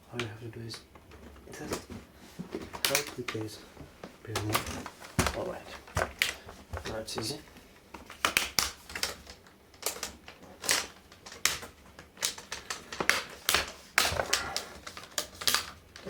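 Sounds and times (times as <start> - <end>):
plastic clips snapping loose: 2.7 - 3.5, 4.3 - 7.3, 8.0 - 16.0.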